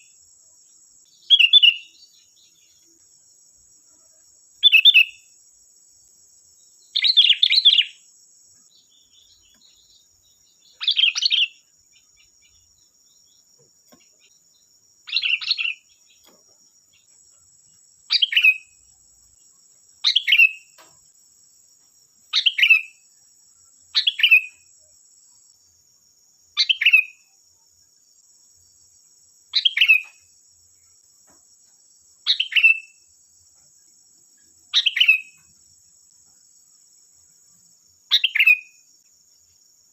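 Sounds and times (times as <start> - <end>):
bird singing: 0.0 - 21.0, 22.2 - 25.6, 26.6 - 27.4, 29.5 - 36.5, 37.2 - 38.9.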